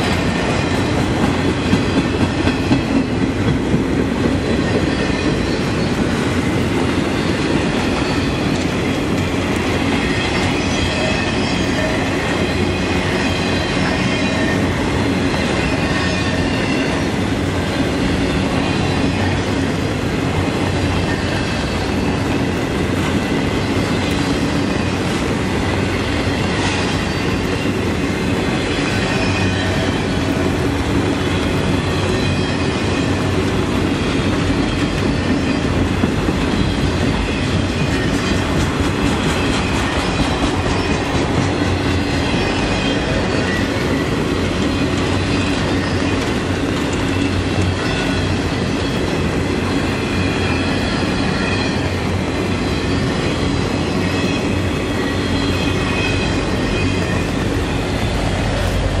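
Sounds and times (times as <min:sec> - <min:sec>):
train wheels rumbling and clattering: 0:00.0 - 0:59.0
thin high wheel squeals: 0:28.8 - 0:30.3.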